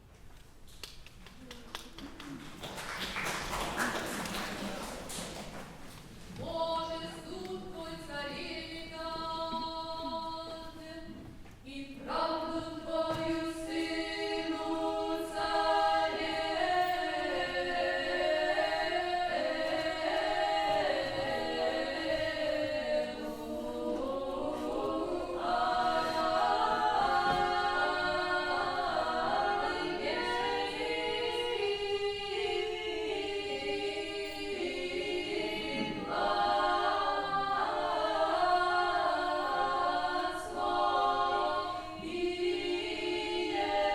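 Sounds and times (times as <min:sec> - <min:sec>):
a cappella choir singing: 0:03.8 - 0:43.9.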